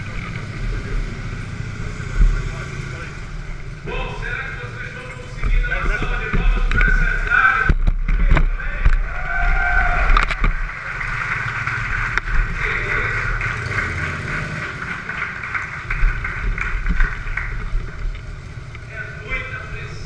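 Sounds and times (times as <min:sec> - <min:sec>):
motorcycle engines running: 0:00.0 - 0:20.0.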